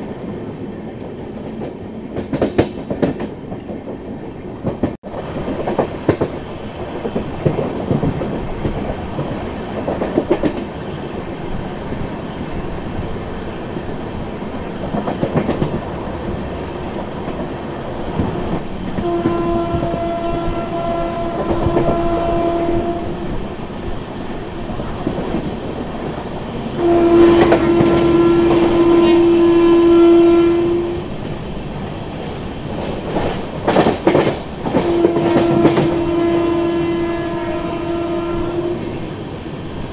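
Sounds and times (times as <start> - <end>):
locomotive horn: 19.0 - 23.3, 26.8 - 31.1, 34.7 - 39.0.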